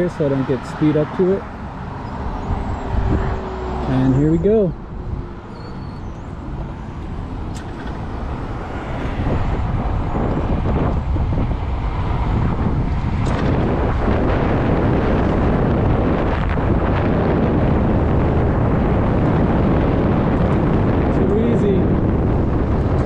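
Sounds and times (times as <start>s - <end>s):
tyre and road noise: 0.0s - 23.0s
wind rushing over camera: 0.0s - 23.0s.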